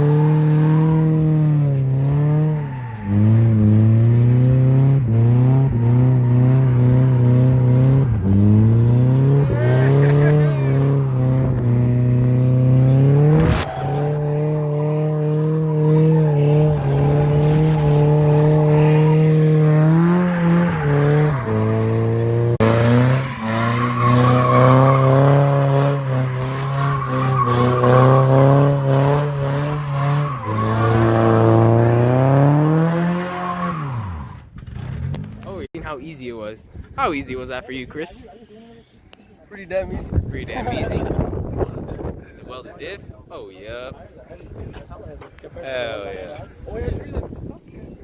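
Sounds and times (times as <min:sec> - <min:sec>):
car engine revving: 0:00.0 - 0:35.5
tyres squealing and skidding: 0:01.9 - 0:04.0, 0:05.1 - 0:34.6.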